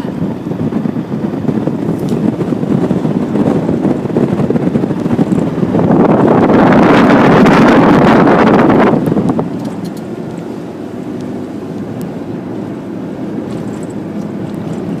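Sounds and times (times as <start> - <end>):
road and engine rumble: 0.0 - 15.0
wind buffeting microphone: 0.0 - 15.0.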